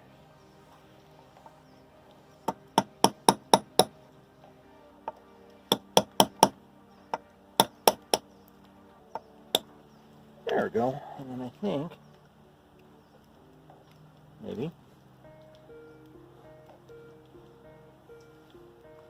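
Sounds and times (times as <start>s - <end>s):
hammer striking metal coupling: 5.7s - 6.6s.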